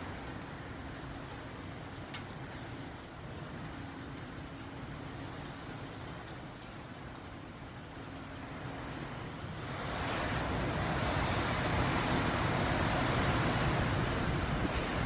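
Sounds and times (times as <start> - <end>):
strong wind rushing past building: 8.8 - 15.0.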